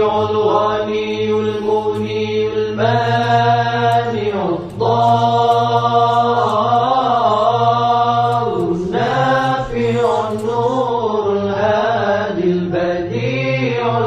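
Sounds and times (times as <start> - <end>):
person chanting melodic recitation: 0.0 - 11.0.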